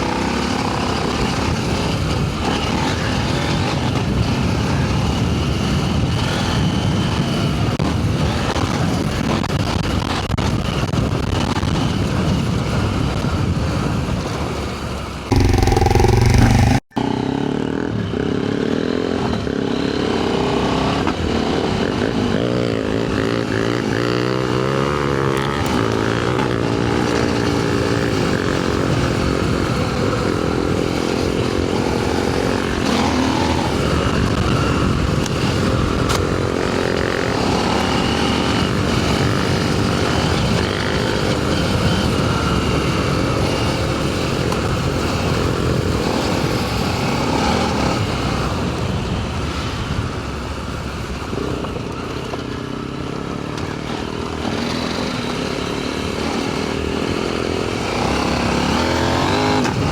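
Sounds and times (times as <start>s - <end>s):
wind and tyre noise: 0.0s - 59.9s
motorcycle engine revving: 15.3s - 50.2s, 51.2s - 59.9s.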